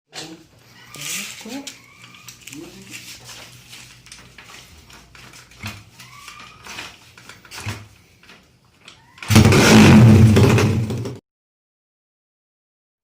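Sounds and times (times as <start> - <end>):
motorcycle engine starting and running: 9.2 - 11.2.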